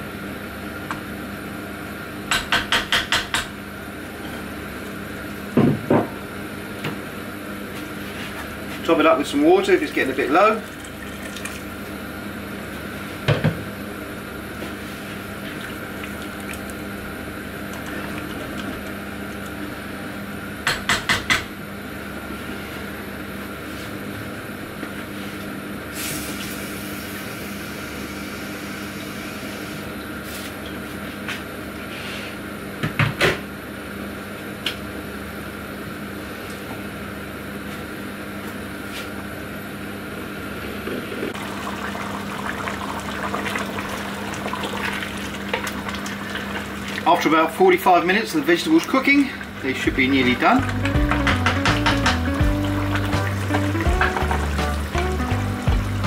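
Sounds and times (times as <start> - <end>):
kitchen hum: 0.0 - 32.4, 40.1 - 56.0
stew simmering: 41.3 - 47.2, 48.7 - 56.0
sharp clattering knocks: 50.8 - 52.5.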